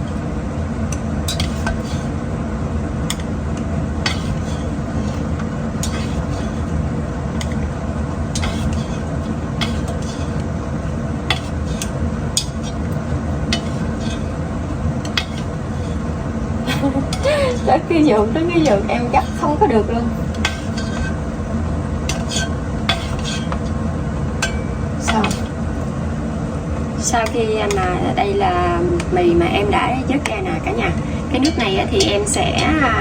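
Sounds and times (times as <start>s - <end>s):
steady hum: 0.0s - 33.0s
metal utensil scraping pot: 1.3s - 2.2s, 4.0s - 16.2s, 17.1s - 21.4s, 22.0s - 25.7s, 29.4s - 33.0s.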